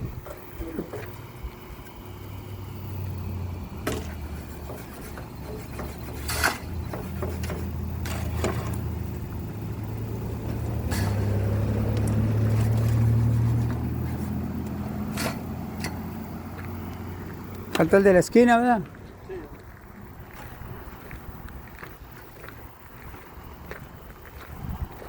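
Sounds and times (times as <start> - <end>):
engine humming: 0.0 - 25.0
sharp knocks and clanks: 3.8 - 8.9.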